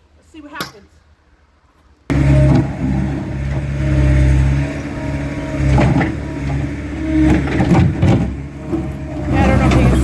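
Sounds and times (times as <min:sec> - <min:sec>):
skid steer engine running hard: 0:02.1 - 0:10.0.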